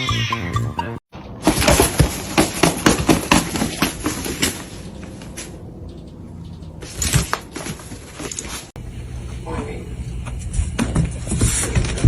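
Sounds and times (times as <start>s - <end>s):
knocks and clatter: 1.2s - 4.8s.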